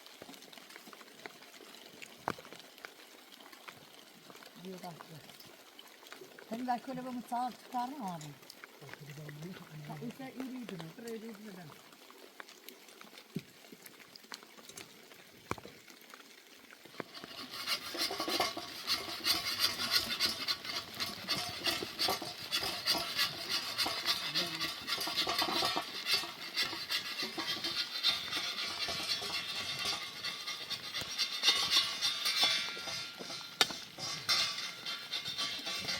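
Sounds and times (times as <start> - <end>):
spoon scraping metal pot: 17.0 - 35.9.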